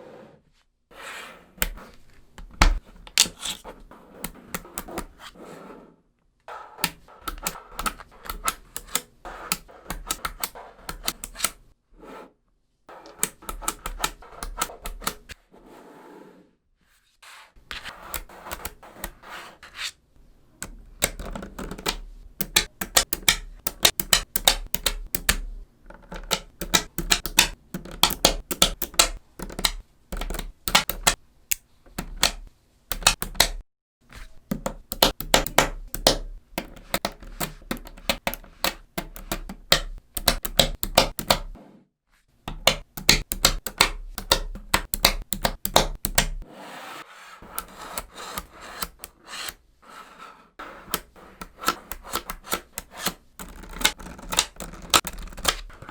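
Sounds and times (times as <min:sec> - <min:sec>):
magnetic balls clicking together: 0:06.8 - 0:11.6, 0:20.6 - 0:33.6, 0:34.4 - 0:41.6, 0:42.5 - 0:46.4, 0:50.8 - 0:55.9.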